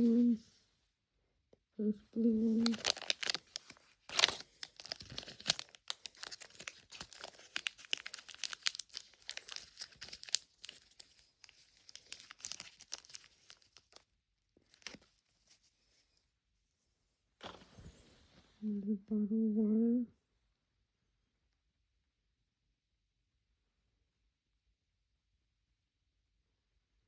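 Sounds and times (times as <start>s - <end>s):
plastic wrapping tearing and crinkling: 2.6s - 14.0s, 14.6s - 15.1s.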